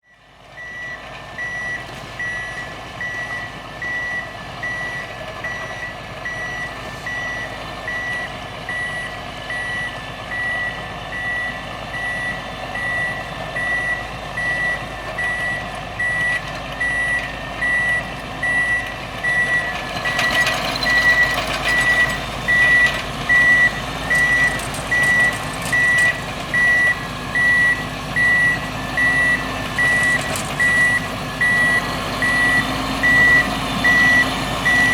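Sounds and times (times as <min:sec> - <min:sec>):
diesel engine running: 0:00.1 - 0:34.9
reverse alarm beeps: 0:00.1 - 0:34.9.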